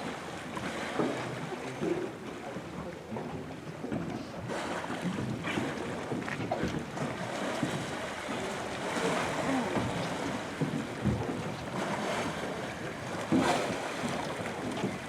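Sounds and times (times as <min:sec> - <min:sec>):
water lapping against boat hull: 0:00.0 - 0:15.0
knock or splash: 0:08.9 - 0:12.4, 0:13.3 - 0:15.0.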